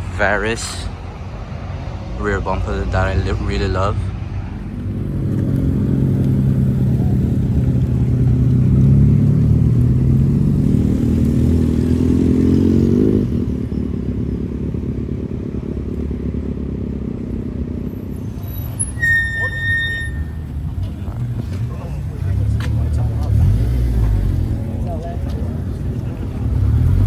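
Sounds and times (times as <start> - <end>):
car engine running: 4.5 - 18.9.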